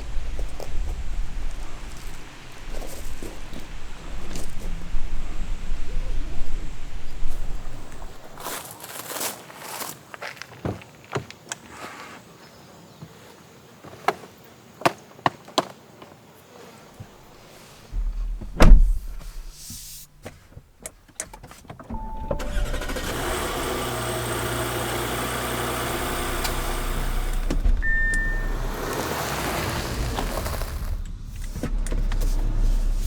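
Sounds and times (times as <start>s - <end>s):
car door thudding shut: 17.9s - 19.8s, 25.9s - 32.6s
car engine running: 21.9s - 33.0s
chime beeps: 27.8s - 29.3s.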